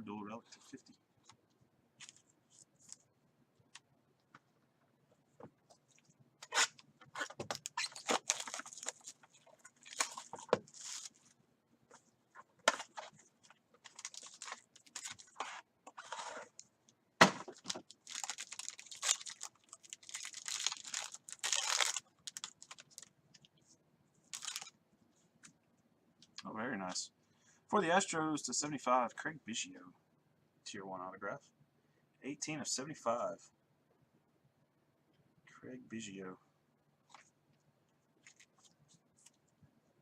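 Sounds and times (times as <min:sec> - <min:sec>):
packaging tearing and crinkling: 0:06.5 - 0:11.2, 0:13.8 - 0:15.6, 0:17.3 - 0:23.1, 0:24.3 - 0:24.7.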